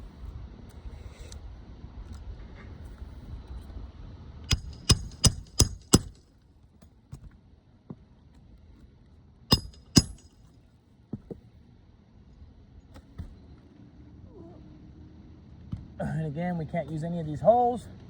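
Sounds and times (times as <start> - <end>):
hammer striking nails: 4.5 - 6.2, 9.5 - 10.4.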